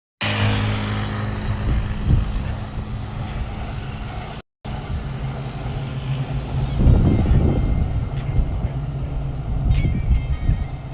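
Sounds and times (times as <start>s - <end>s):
vehicle drone: 0.2s - 10.9s.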